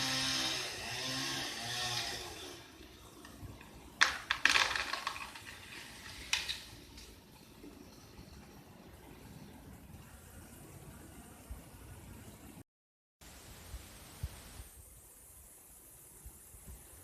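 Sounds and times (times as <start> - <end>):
chainsaw engine running: 0.0 - 2.8
wood cracking and snapping: 4.0 - 6.7.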